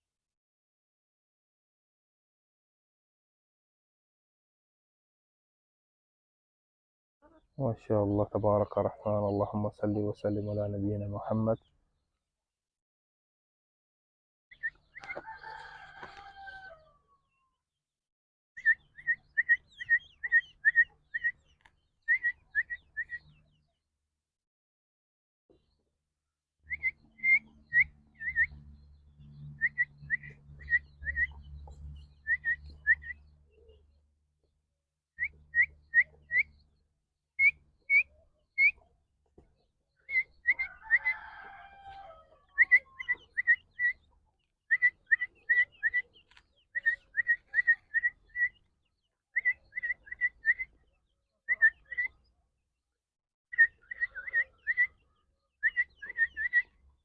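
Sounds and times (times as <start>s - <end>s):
partridge calling: 18.6s - 23.5s, 26.7s - 28.6s, 29.6s - 33.8s, 35.2s - 36.6s, 37.4s - 38.9s, 40.0s - 41.2s, 42.4s - 48.7s, 49.3s - 52.2s, 53.5s - 56.8s.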